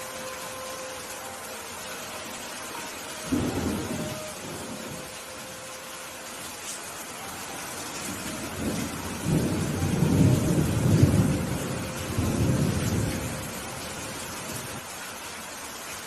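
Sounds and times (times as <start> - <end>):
steady rain: 0.0 - 16.0
thunder rolling: 8.6 - 13.5.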